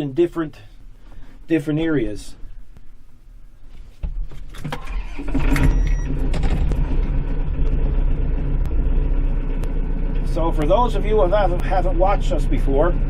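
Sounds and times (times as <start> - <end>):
tractor diesel engine running: 4.6 - 13.0.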